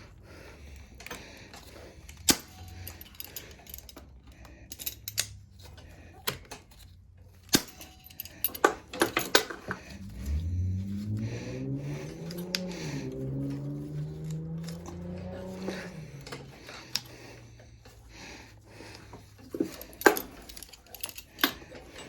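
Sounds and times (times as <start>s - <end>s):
metal parts and tools clinking: 0.7s - 11.2s, 12.0s - 22.0s
low wavering hum: 9.5s - 21.2s.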